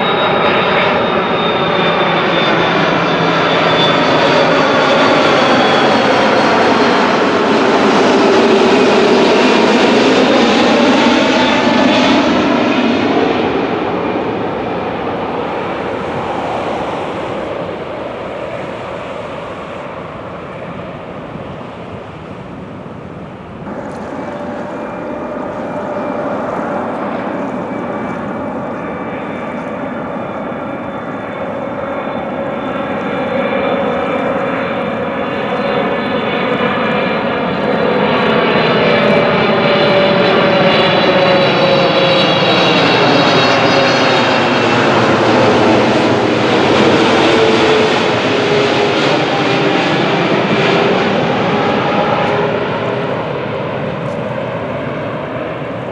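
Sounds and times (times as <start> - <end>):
jet airliner passing: 0.0 - 55.9
jet engine roar with high whine: 0.0 - 55.9.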